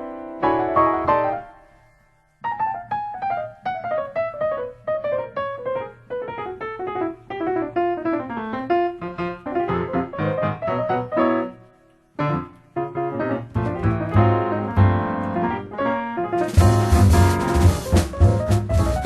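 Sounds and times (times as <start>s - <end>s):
solo piano: 0.0s - 19.0s.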